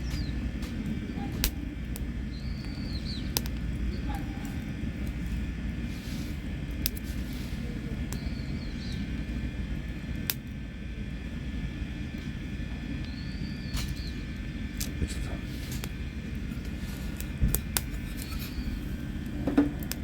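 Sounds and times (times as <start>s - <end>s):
small bird chirping: 0.0s - 0.4s, 2.3s - 4.4s, 8.1s - 9.1s, 13.0s - 14.3s, 18.2s - 18.8s
campfire burning: 0.0s - 20.0s
wood popping in fire: 0.0s - 20.0s.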